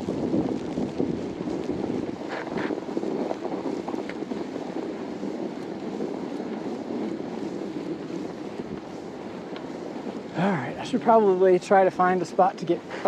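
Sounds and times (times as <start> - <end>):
bike tyres rolling over snow: 0.0 - 13.0
wind buffeting microphone: 0.0 - 13.0
faint clicks: 8.7 - 10.2.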